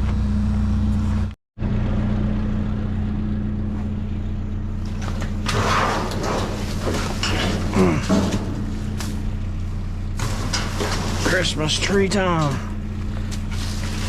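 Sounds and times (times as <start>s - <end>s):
vehicle engine idling: 0.0s - 14.0s
rustling scraping handling noise: 4.8s - 9.3s, 10.2s - 14.0s.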